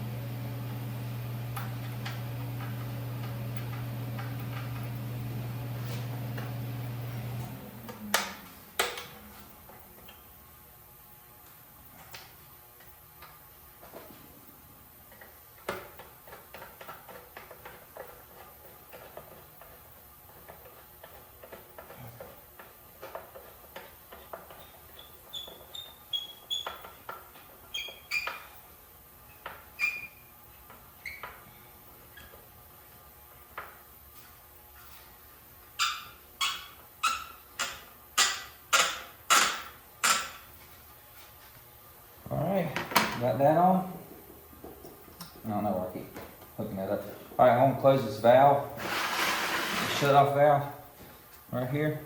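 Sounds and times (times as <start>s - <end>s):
clicks of tools and metal parts: 37.6s - 40.5s.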